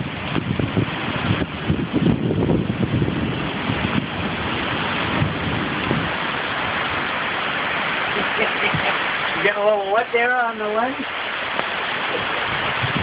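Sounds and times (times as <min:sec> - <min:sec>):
heavy rain hiss: 0:00.0 - 0:13.0
raindrops pattering: 0:00.0 - 0:13.0.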